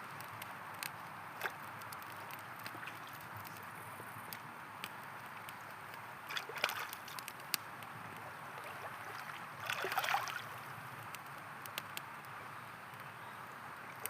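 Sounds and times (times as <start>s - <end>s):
campfire crackling and popping: 0.0s - 14.0s
river water flowing: 0.6s - 14.0s
water splashes: 1.4s - 3.5s, 6.2s - 10.8s.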